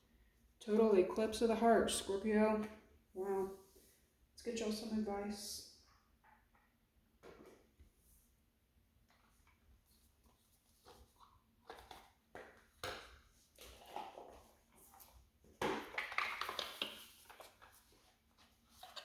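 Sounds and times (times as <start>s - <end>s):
cards rustling and slapping: 10.2s - 18.0s.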